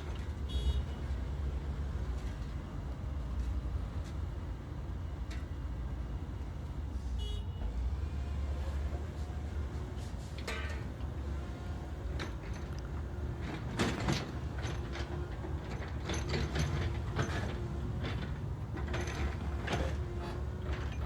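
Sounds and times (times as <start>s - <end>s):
backhoe engine rumble: 0.0s - 21.0s
metallic clanks and creaks: 10.0s - 21.0s.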